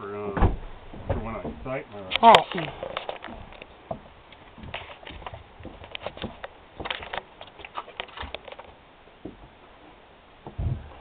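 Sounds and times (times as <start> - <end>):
rustling with small clicks: 0.9 - 8.8.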